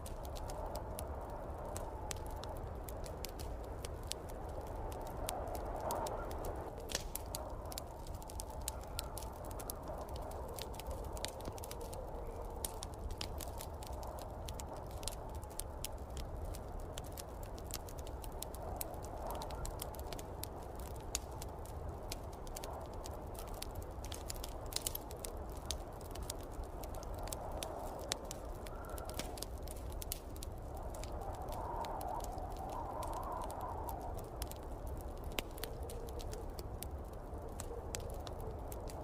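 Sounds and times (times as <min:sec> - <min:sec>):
snowstorm wind rushing: 0:00.0 - 0:39.0
wood fire crackling: 0:00.0 - 0:39.0.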